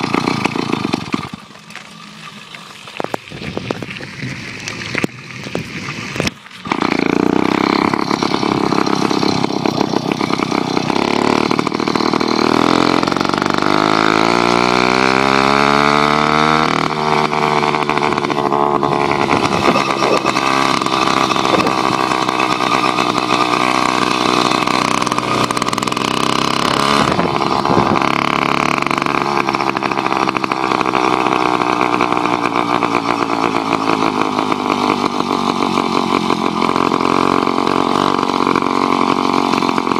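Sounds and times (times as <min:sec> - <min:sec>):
two-stroke motorized bicycle engine: 0:00.0 - 0:39.9.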